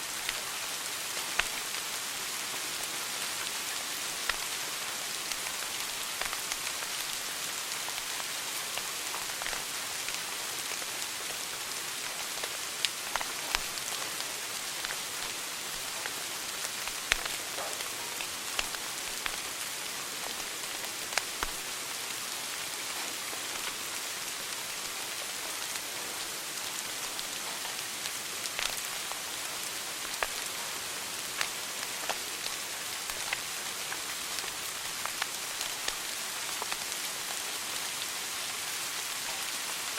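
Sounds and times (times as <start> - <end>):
wood fire crackling: 3.4 - 4.5, 5.2 - 7.2, 7.8 - 9.6, 12.1 - 21.6, 30.0 - 30.5, 31.3 - 36.9.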